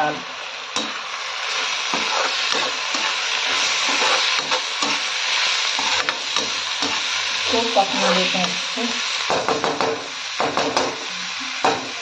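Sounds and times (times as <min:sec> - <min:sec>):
vegetables sizzling in pan: 0:00.0 - 0:12.0
spatula scraping metal pan: 0:01.5 - 0:08.6.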